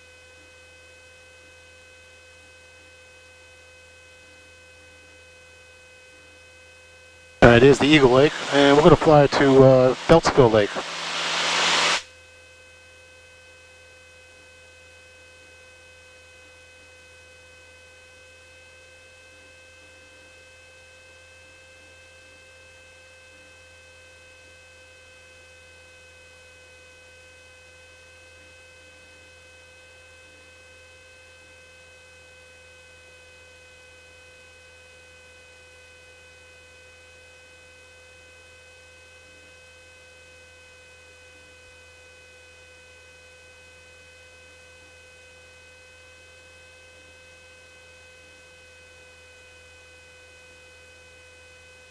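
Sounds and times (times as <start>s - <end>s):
faint thin high whine: 7.4s - 12.0s
loud noise cutting off: 7.4s - 12.0s
steady electrical hum: 7.4s - 12.0s.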